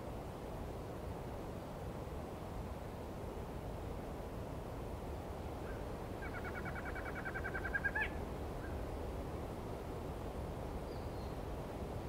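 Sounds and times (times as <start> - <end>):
night bird trilling: 6.2 - 8.8.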